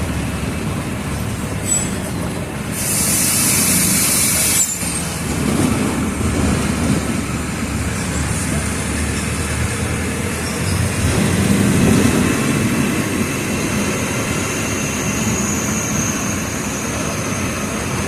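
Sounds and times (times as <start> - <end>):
bus diesel engine rumbling: 0.0 - 18.0
compressed air hiss: 2.7 - 5.0.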